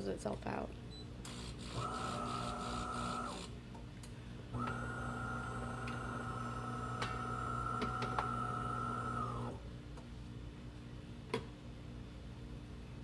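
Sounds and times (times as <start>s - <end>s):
espresso machine whine and hum: 1.2s - 3.6s, 4.4s - 9.8s.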